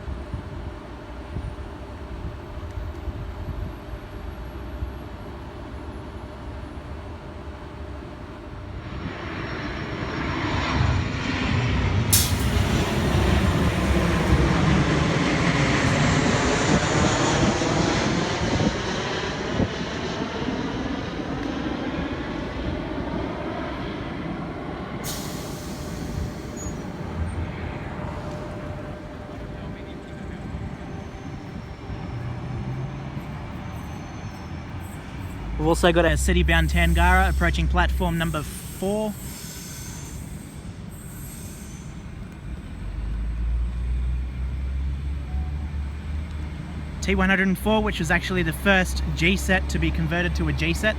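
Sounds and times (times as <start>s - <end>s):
electric train rumbling on track: 0.0s - 50.9s
sudden high hiss: 35.6s - 41.9s.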